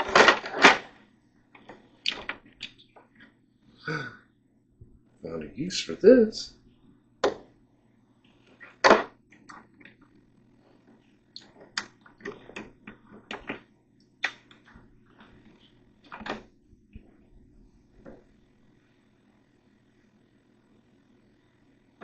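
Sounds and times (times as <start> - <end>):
faint steady hum: 0.0 - 22.0
hard objects clicking and knocking: 11.4 - 13.7.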